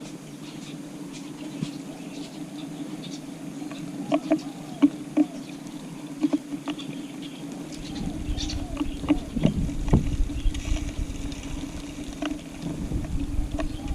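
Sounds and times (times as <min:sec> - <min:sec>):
steady low hum: 0:00.0 - 0:13.9
beaks tapping on tiles: 0:08.4 - 0:10.8.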